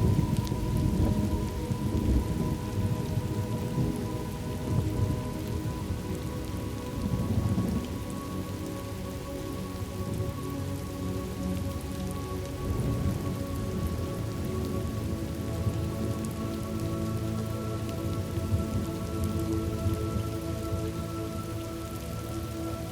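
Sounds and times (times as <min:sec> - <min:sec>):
thunder rumbling: 0:00.0 - 0:06.3, 0:12.6 - 0:14.7
calm music pad: 0:00.0 - 0:22.9
steady rain: 0:00.0 - 0:22.9.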